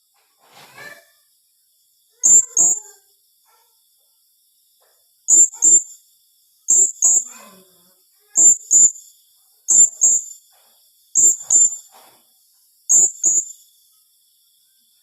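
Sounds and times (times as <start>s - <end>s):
parrot high-pitched double calls: 2.2s - 2.9s, 5.3s - 5.9s, 6.7s - 7.4s, 8.4s - 9.0s, 9.7s - 10.3s, 11.2s - 11.8s, 12.9s - 13.5s.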